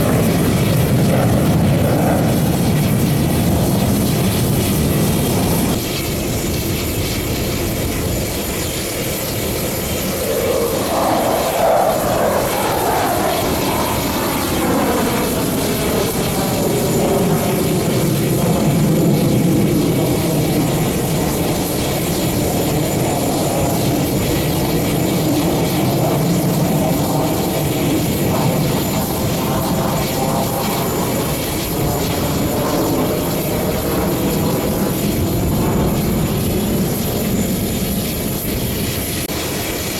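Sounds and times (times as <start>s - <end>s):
jet roar: 0.0s - 39.9s
jet whine falling in pitch: 8.6s - 39.1s.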